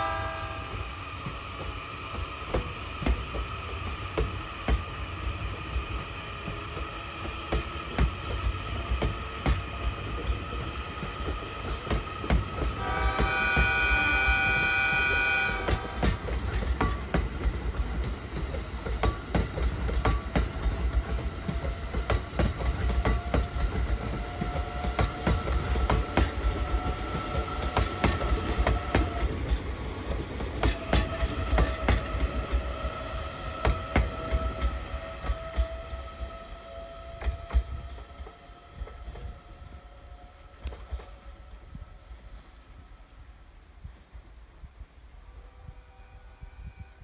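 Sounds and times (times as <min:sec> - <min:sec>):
train horn chord: 0:00.0 - 0:00.9, 0:12.8 - 0:16.4, 0:45.2 - 0:47.0
wheels clacking on rails: 0:00.0 - 0:41.4.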